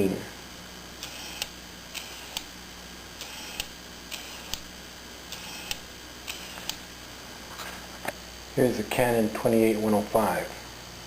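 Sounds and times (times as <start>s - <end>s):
autofocus motor buzzing: 0.8s - 8.2s
lens focus click: 1.0s - 2.5s, 3.2s - 4.7s, 5.3s - 6.8s.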